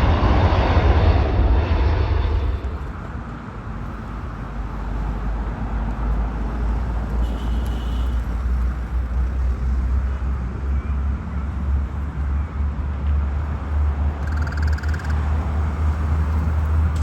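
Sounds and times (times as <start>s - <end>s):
distant jet engines rumbling: 0.0s - 7.1s, 13.0s - 17.0s
background traffic: 0.0s - 17.0s.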